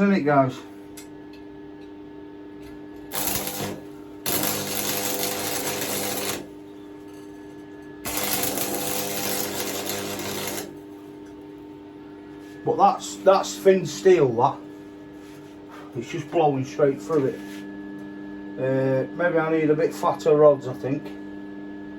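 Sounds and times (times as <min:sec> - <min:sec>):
steady hum: 0:00.0 - 0:21.9
arc welder crackling: 0:03.0 - 0:11.7.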